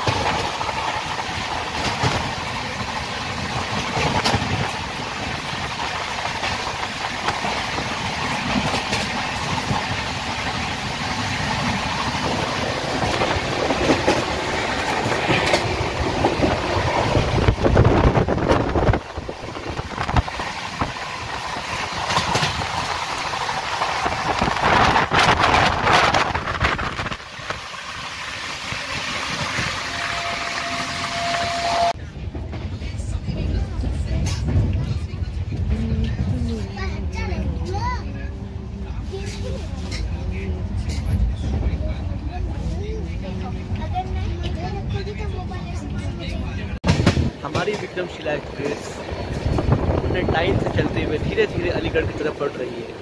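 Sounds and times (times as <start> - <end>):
wheels clattering over rails: 0.0 - 30.8, 43.6 - 53.0
train rumbling: 0.0 - 53.0.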